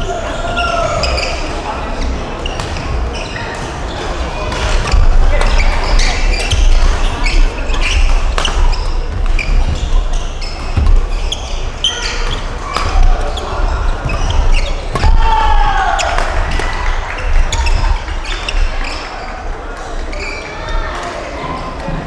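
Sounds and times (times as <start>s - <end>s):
court shoes squeaking: 0.0s - 22.0s
racket hitting shuttlecock: 2.4s - 19.2s
footfalls on court: 2.5s - 19.2s.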